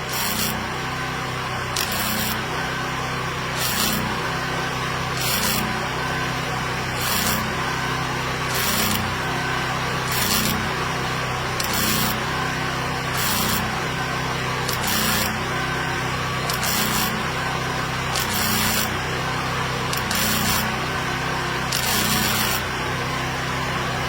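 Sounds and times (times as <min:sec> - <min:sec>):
rasping scraping strokes: 0:00.0 - 0:00.6, 0:01.8 - 0:02.5, 0:03.6 - 0:04.2, 0:05.2 - 0:05.7, 0:07.0 - 0:07.6, 0:08.5 - 0:09.1, 0:10.1 - 0:10.7, 0:11.6 - 0:12.2, 0:13.1 - 0:13.7, 0:14.7 - 0:15.4, 0:16.5 - 0:17.2, 0:18.2 - 0:18.9, 0:20.0 - 0:20.7, 0:21.7 - 0:22.6.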